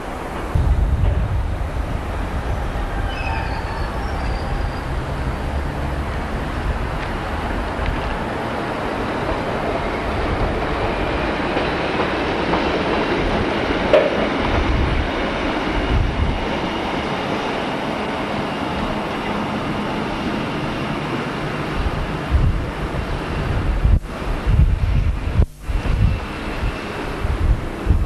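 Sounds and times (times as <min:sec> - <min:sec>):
train rumbling past: 0:00.0 - 0:28.0
wheels clattering over rail joints: 0:10.6 - 0:14.7.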